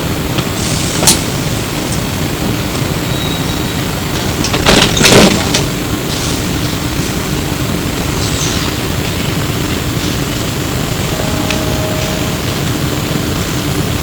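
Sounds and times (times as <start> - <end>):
trolleybus running rumble: 0.0 - 14.0
loud rush of noise: 10.6 - 13.9.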